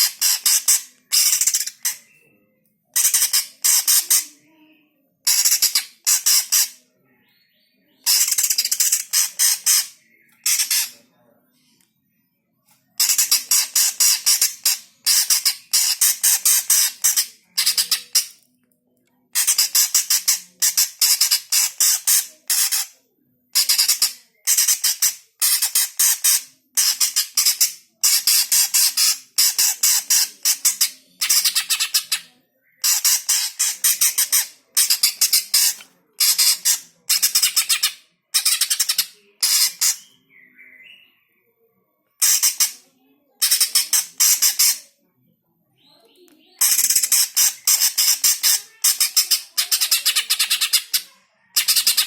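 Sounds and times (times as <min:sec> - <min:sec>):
bird rattling chatter: 0:00.0 - 0:02.0, 0:03.0 - 0:04.3, 0:05.3 - 0:06.8, 0:08.1 - 0:11.0, 0:13.0 - 0:18.4, 0:19.4 - 0:22.9, 0:23.6 - 0:40.0, 0:42.2 - 0:42.8, 0:43.4 - 0:44.8, 0:46.6 - 0:52.0.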